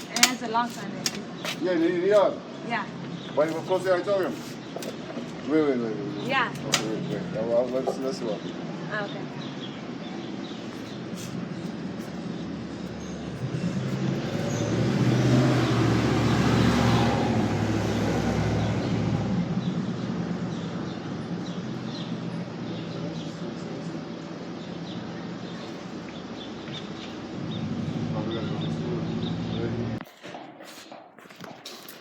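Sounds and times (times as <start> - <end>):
vehicle passing by: 10.9 - 30.0.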